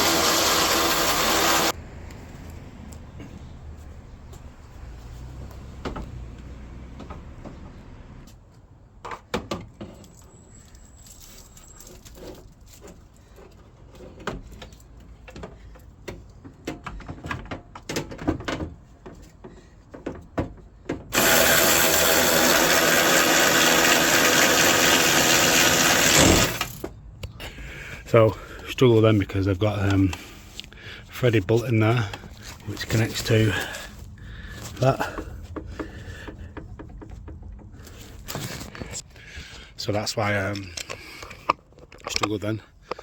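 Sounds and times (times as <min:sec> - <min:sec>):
power drill running: 0:00.0 - 0:01.8, 0:21.1 - 0:26.8.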